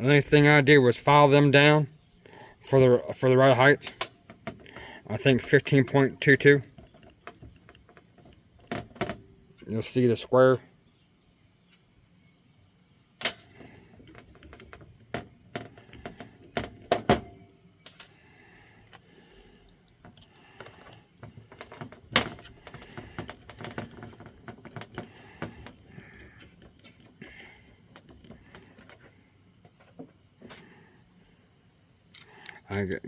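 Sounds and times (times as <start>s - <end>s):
small hard parts clicking: 3.8s - 9.2s, 13.2s - 18.2s, 18.8s - 30.6s, 32.1s - 32.9s.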